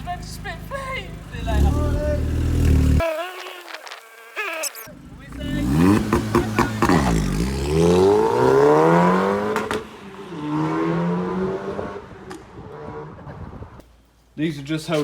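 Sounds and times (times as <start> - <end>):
car engine revving hard: 1.4 - 3.0, 5.3 - 13.3.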